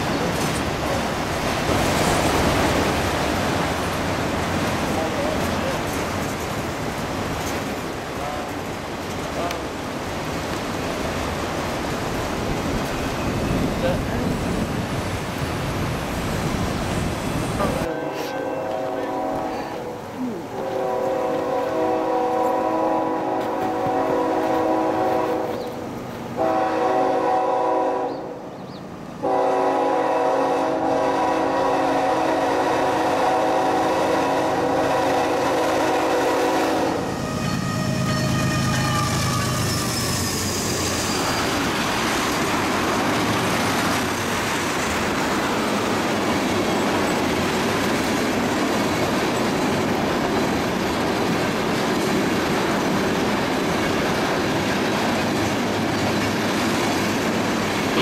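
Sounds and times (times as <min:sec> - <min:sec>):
train wheels clickety-clack: 0:00.0 - 0:09.7, 0:23.3 - 0:26.4, 0:38.2 - 0:58.0
multi-chime air horn blasts: 0:17.9 - 0:19.6
brief high squeal: 0:37.4 - 0:41.5.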